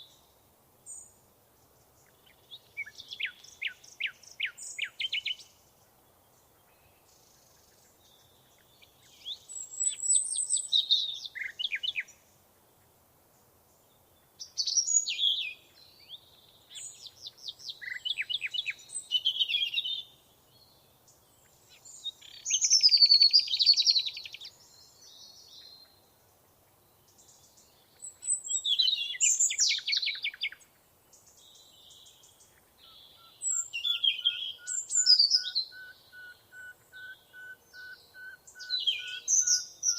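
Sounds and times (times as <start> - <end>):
songbird trilling: 2.0 - 5.5, 14.4 - 20.1, 21.7 - 24.6, 27.1 - 30.6, 31.6 - 39.9.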